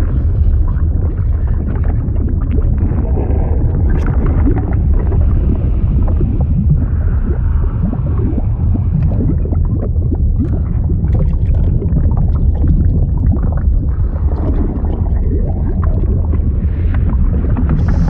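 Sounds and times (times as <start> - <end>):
deep underwater rumble: 0.0 - 18.0
water bubbling and gurgling: 0.0 - 18.0.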